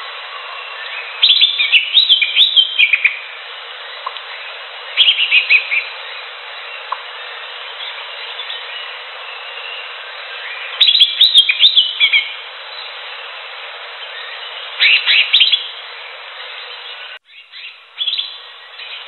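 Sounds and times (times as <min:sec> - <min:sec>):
background hiss: 0:00.0 - 0:19.0
bird whistled chirps: 0:00.6 - 0:03.2, 0:07.8 - 0:12.4, 0:14.2 - 0:15.7, 0:17.3 - 0:19.0.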